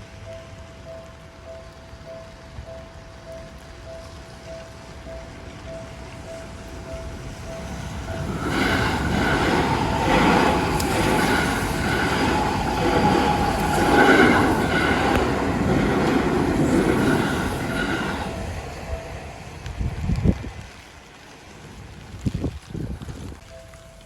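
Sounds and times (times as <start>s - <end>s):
level-crossing warning bell: 0.0s - 20.0s, 23.5s - 24.0s
train wheels clattering on rails: 5.2s - 20.7s.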